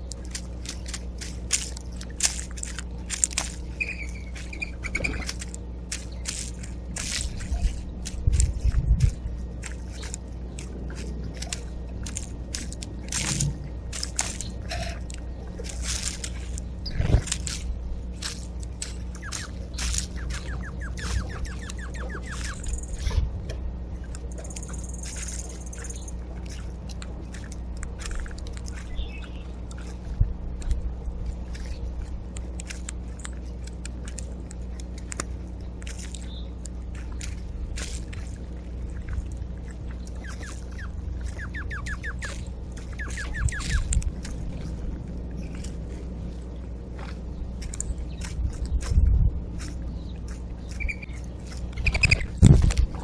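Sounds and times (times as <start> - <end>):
rapid ticks: 0.0 - 30.9
steady low hum: 0.0 - 53.0
bird calls and chirps: 3.6 - 12.2, 18.8 - 23.2, 24.3 - 26.2, 28.1 - 29.6, 36.0 - 36.6, 40.0 - 44.0, 47.2 - 52.4.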